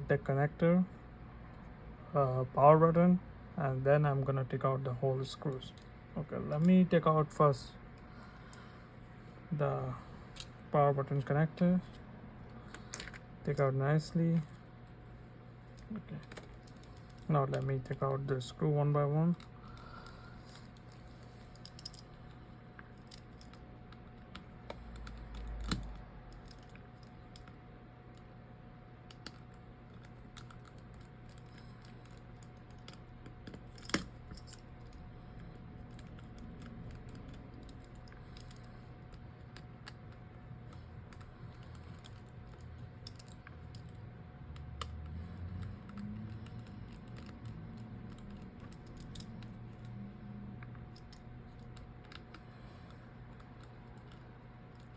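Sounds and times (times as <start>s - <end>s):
faint steady hum: 0.0s - 54.9s.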